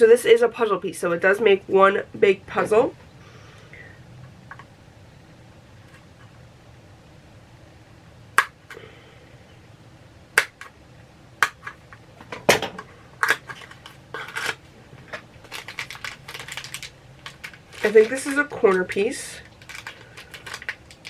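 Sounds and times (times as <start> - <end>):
packaging crinkling: 13.2 - 21.0
packaging clicking and snapping: 15.4 - 21.0.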